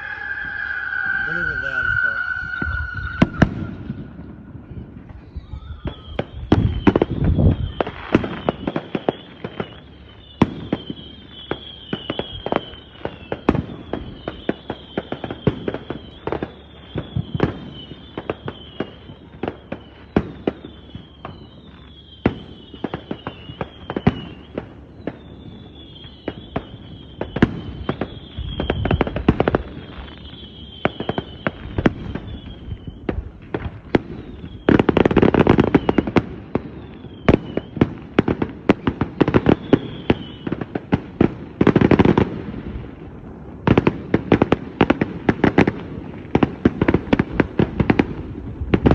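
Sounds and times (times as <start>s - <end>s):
high falling whistle: 0.0s - 33.1s
fireworks bangs and cracks: 0.0s - 48.9s
fireworks booming: 0.0s - 48.9s.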